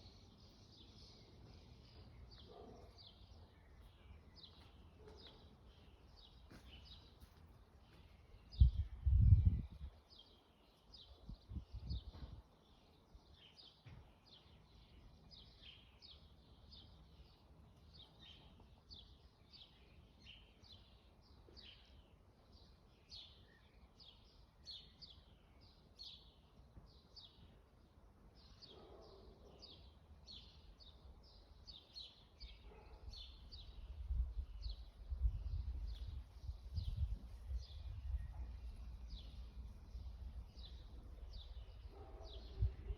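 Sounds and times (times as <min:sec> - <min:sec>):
small birds chirping chorus: 0:00.0 - 0:42.9
wind rumble on microphone: 0:08.4 - 0:10.1, 0:11.2 - 0:12.5, 0:33.2 - 0:42.9.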